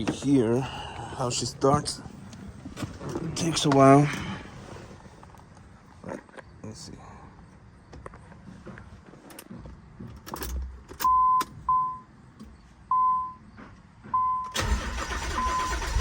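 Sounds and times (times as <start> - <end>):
car warning chime beeping: 11.0 - 12.1, 12.9 - 13.4, 14.1 - 15.9
car engine cranking and starting: 14.4 - 16.0.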